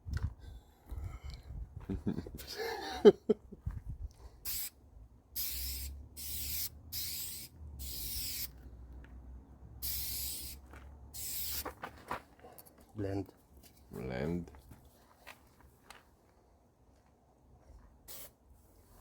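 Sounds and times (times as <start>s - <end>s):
spray gun hissing: 4.5s - 4.7s, 5.4s - 8.5s, 9.8s - 10.6s, 11.2s - 11.6s, 18.1s - 18.3s.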